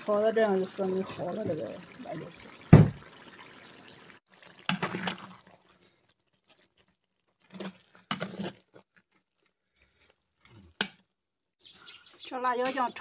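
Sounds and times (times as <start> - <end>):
spatula scraping a wok: 7.4 - 10.5.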